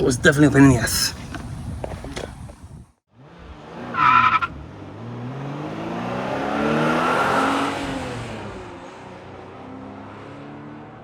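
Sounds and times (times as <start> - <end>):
diesel engine revving: 3.1 - 10.5.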